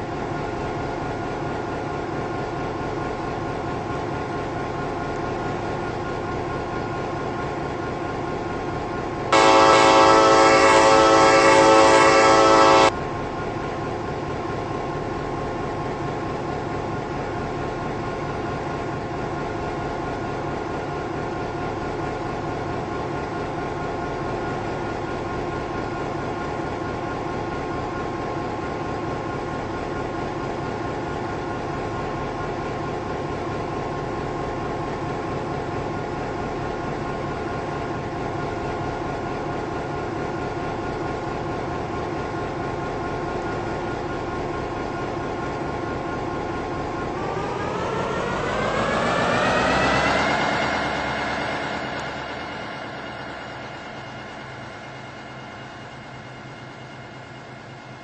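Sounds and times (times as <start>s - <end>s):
running train noise: 0.0s - 58.0s
locomotive air horn blast: 9.3s - 13.0s.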